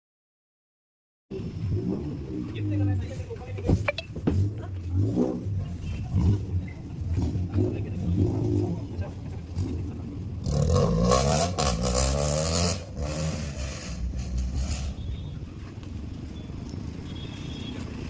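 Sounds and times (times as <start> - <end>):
race car engine revving past: 10.4 - 15.0.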